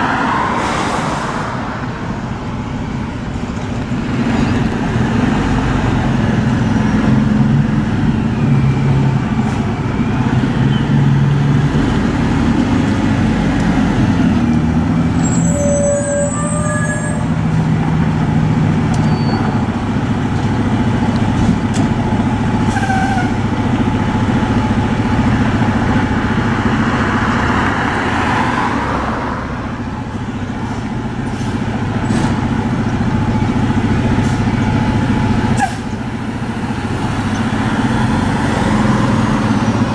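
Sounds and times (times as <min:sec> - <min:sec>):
diesel truck engines rumbling: 0:00.0 - 0:39.9
air brakes hissing: 0:35.6 - 0:36.0.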